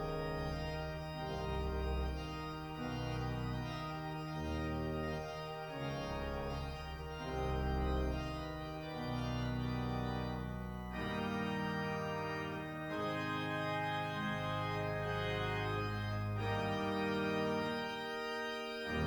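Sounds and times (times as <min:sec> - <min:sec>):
organ playing slow chords: 0:00.0 - 0:19.0.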